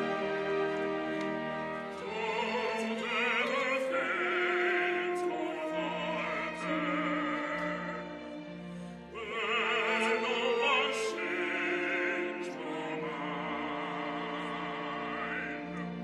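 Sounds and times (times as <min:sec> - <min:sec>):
orchestra sustained chords: 0:00.0 - 0:16.0
opera singer with vibrato: 0:02.0 - 0:08.1, 0:09.1 - 0:15.8.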